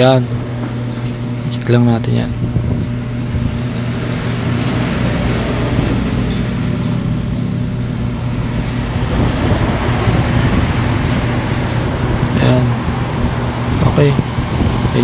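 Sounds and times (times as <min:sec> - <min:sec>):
low hum: 0:00.0 - 0:15.0
even rushing noise: 0:03.9 - 0:15.0.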